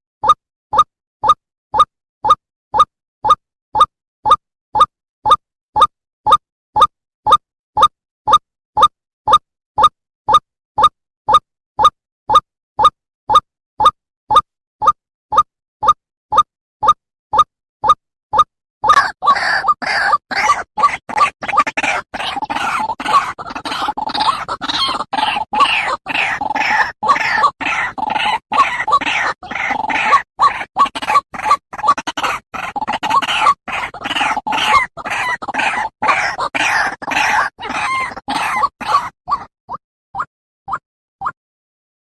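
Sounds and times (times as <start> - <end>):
bird croaking rapidly: 18.9 - 39.5.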